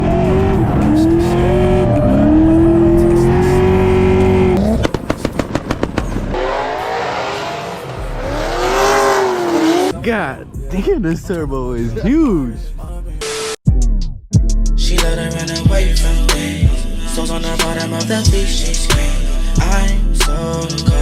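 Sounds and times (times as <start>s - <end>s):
car engine revving: 0.0s - 10.0s
tire squeal: 6.3s - 9.9s.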